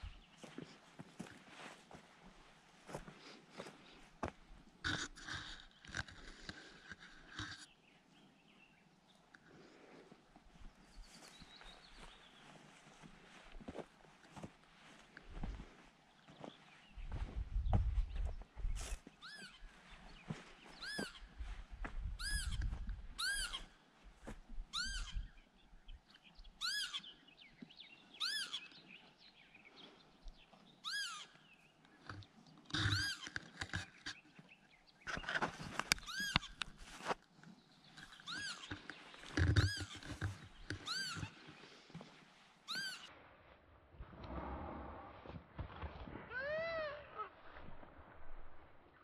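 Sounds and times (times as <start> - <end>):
dull low thuds: 17.0 - 18.7
bird calling: 19.1 - 21.4, 22.2 - 23.8, 24.7 - 25.4, 26.4 - 29.0, 30.8 - 34.2, 38.0 - 41.8, 42.7 - 43.1.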